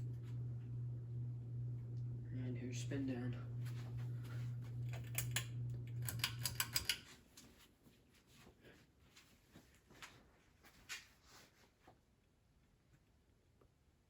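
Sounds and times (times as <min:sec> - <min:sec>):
ceiling fan motor hum: 0:00.0 - 0:07.5
ceiling fan clicks: 0:04.7 - 0:07.5.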